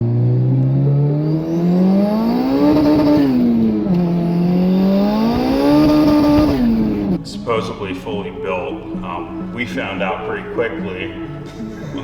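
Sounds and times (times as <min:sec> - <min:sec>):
engine accelerating hard: 0:00.0 - 0:07.2.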